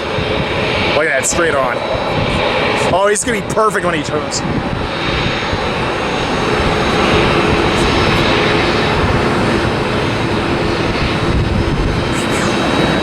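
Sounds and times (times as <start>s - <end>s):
faint engine whine: 0.0s - 13.0s
jet engines roaring: 0.0s - 13.0s.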